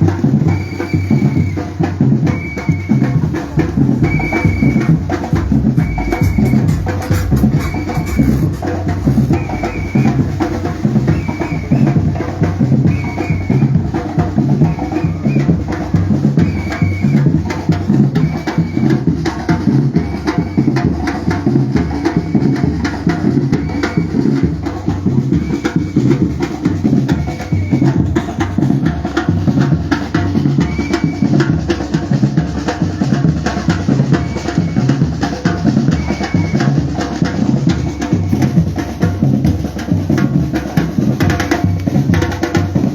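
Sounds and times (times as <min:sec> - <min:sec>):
street percussion drumming: 0:00.0 - 0:42.9
short high tone: 0:04.1 - 0:10.1.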